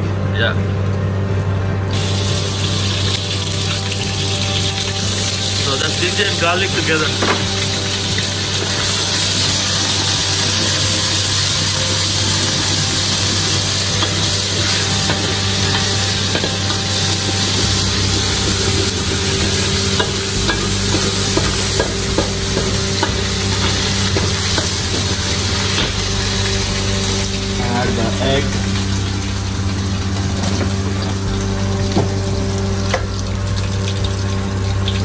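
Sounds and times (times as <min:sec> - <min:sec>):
steady low hum: 0:00.0 - 0:35.0
garlic sizzling in hot oil: 0:01.9 - 0:35.0
utensils scraping and clinking on pan: 0:05.6 - 0:28.2.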